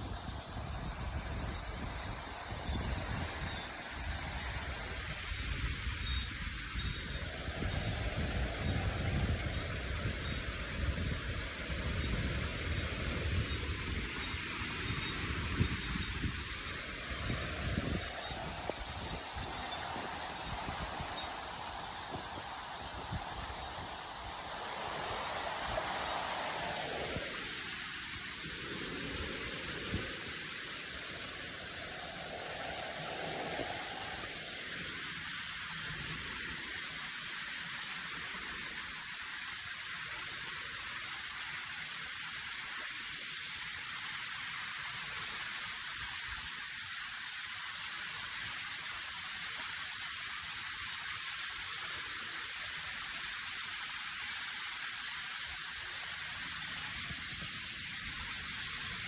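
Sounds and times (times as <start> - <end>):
waterfall rushing: 0.0 - 39.2.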